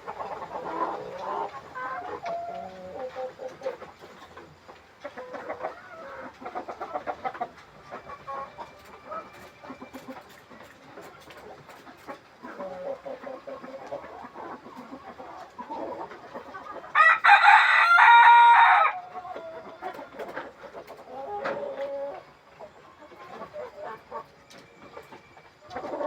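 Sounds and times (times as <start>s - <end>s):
chickens clucking: 0.0s - 26.0s
rooster crowing: 16.9s - 19.1s.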